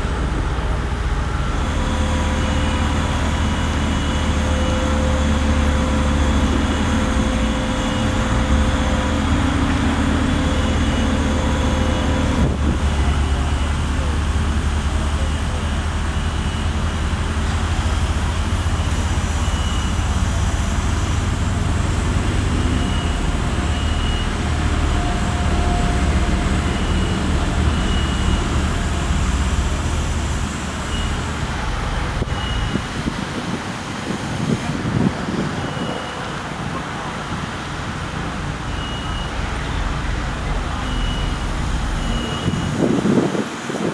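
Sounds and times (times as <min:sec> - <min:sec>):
heavy machine engine rumble: 0:00.0 - 0:43.9
outdoor noise: 0:00.0 - 0:43.9
wind on microphone: 0:42.1 - 0:43.9.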